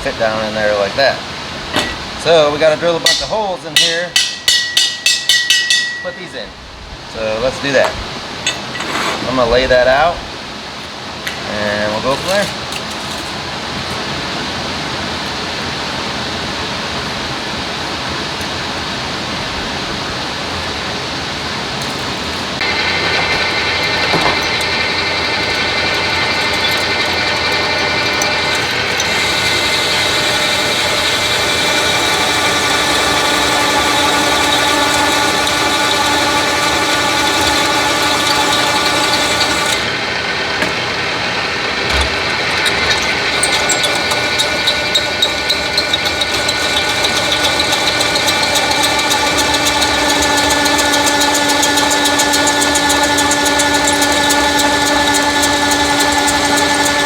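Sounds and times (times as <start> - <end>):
electric drill whining: 22.6 - 57.0
rapid clicking chatter: 42.2 - 57.0.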